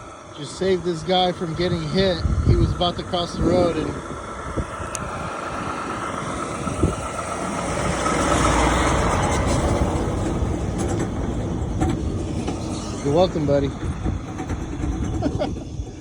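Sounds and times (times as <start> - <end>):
vehicle rumbling on road: 0.0 - 16.0.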